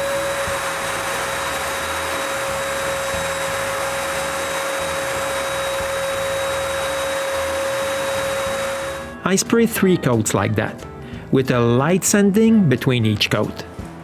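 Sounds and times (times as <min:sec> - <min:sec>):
spray gun rushing air: 0:00.0 - 0:09.2
air supply whine: 0:00.0 - 0:09.3.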